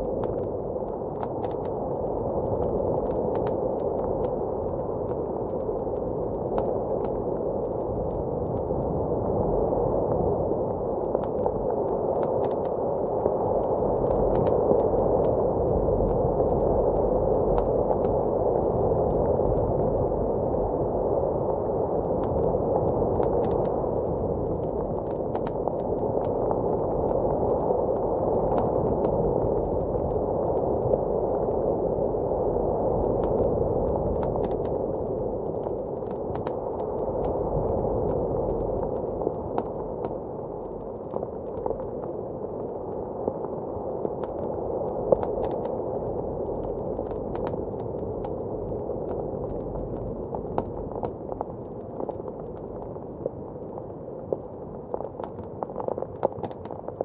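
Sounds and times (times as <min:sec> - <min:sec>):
blizzard wind blowing: 0:00.0 - 0:57.0
wood fire crackling: 0:22.0 - 0:53.7.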